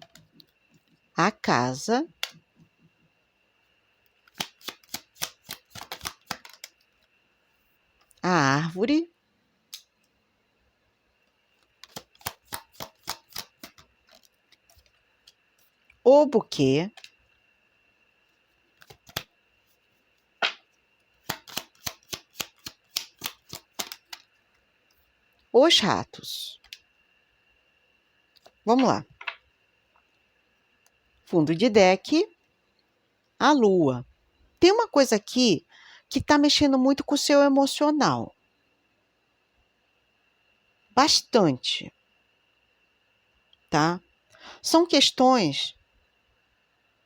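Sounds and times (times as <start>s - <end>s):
cards snapping and flicking: 4.3s - 6.8s, 11.8s - 14.9s, 18.8s - 19.3s, 20.4s - 24.2s.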